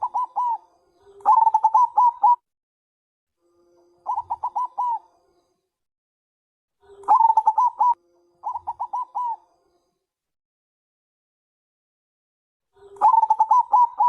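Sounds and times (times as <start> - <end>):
dove cooing: 0.0 - 0.6, 1.2 - 2.4, 4.0 - 5.1, 7.0 - 9.4, 12.8 - 14.0.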